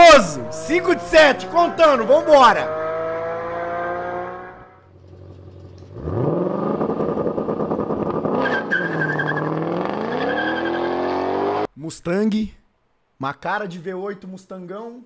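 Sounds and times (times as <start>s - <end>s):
car engine revving hard: 0.8s - 4.8s, 5.8s - 11.7s.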